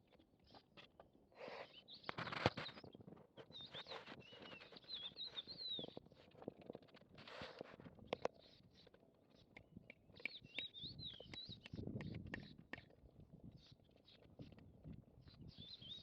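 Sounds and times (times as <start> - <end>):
bird chirps: 1.5 - 6.0, 8.2 - 12.9, 15.2 - 16.0.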